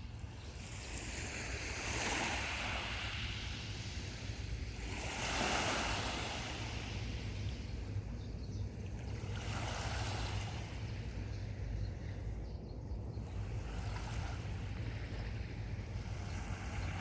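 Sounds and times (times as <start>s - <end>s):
sea waves breaking on beach: 0.8s - 7.3s.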